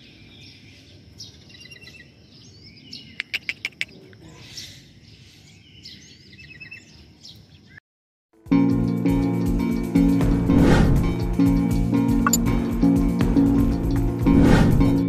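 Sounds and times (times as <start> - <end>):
birds chattering and trilling: 0.0 - 7.8.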